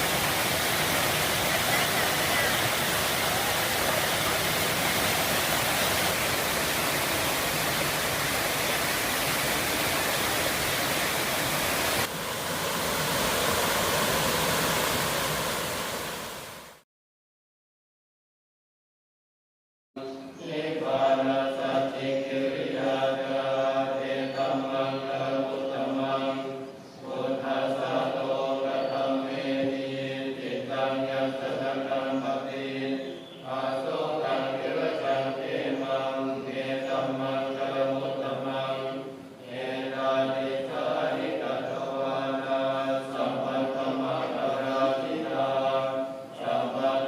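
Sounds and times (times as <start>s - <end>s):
low voices chanting in unison: 20.1s - 47.0s.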